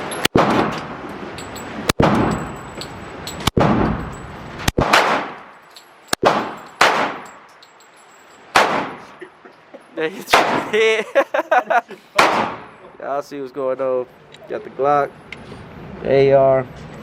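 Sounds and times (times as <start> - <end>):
gunshots echoing indoors: 4.7 - 5.5, 8.5 - 9.0, 12.2 - 12.6.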